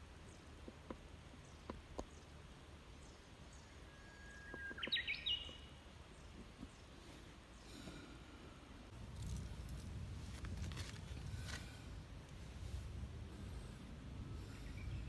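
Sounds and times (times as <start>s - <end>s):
faint high bird chirps: 3.0s - 6.9s
bird whistled call: 3.9s - 5.7s
low outdoor rumble: 5.7s - 15.0s.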